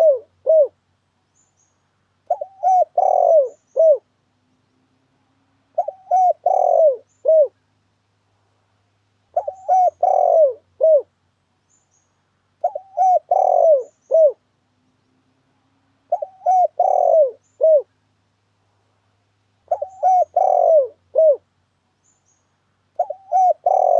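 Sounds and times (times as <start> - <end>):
dove cooing: 0.0 - 0.8, 2.3 - 4.1, 5.7 - 7.6, 9.3 - 11.1, 12.6 - 14.4, 16.1 - 17.9, 19.7 - 21.5, 23.0 - 23.9.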